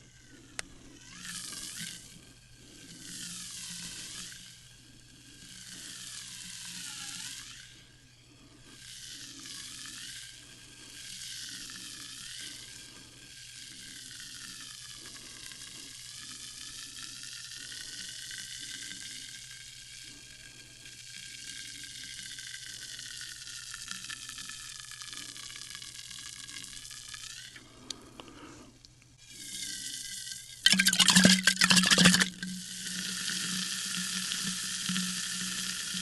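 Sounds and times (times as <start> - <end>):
sparkling water fizzing: 30.7 - 32.4.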